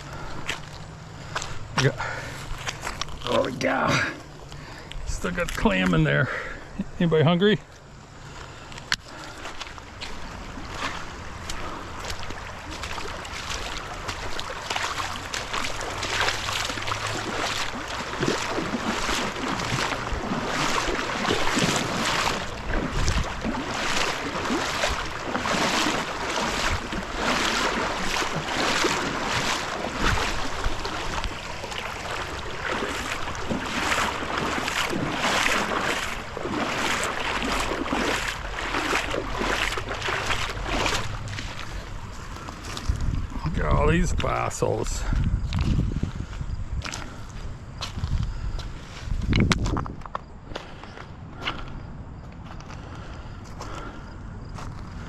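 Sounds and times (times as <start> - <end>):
splashing in shallow water: 0.0 - 7.0, 8.1 - 55.0
wind on microphone: 17.7 - 44.3, 44.9 - 50.4.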